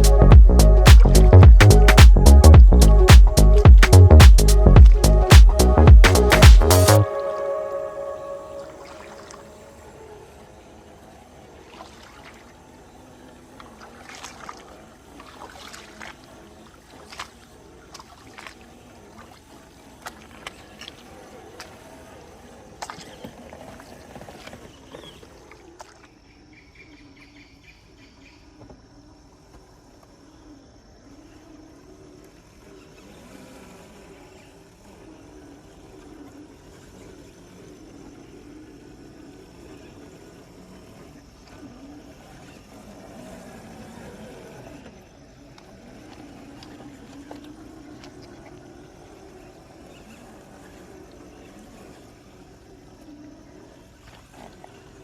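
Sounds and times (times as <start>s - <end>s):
electric motor and gears whining: 0.0s - 7.0s
insects chirping: 0.0s - 55.0s.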